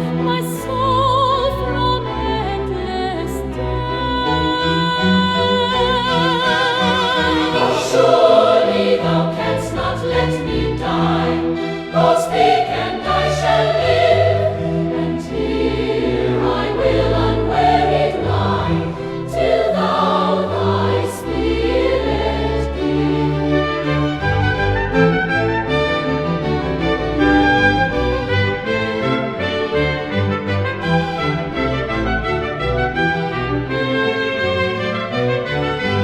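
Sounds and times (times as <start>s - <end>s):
instrumental accompaniment: 0.0s - 36.0s
choir singing hymn: 3.4s - 24.5s.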